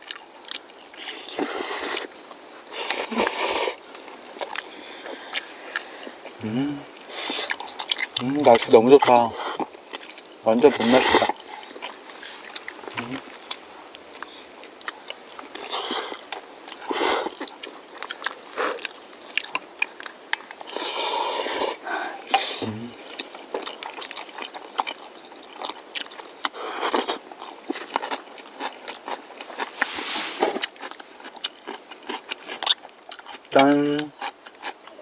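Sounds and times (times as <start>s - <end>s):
chewing: 0.0s - 35.0s
slurping noodles: 29.6s - 30.8s.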